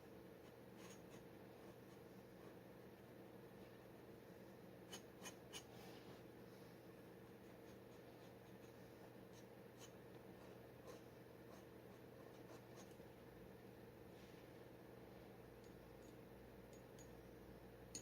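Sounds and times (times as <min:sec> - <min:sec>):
low steady hum: 0:00.0 - 0:18.0
dip pen scratching on paper: 0:00.4 - 0:02.6, 0:04.9 - 0:05.7, 0:07.2 - 0:13.0.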